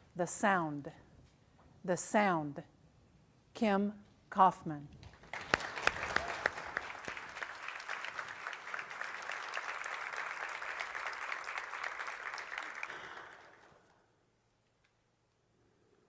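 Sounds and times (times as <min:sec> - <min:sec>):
audience applauding: 0:05.1 - 0:13.9.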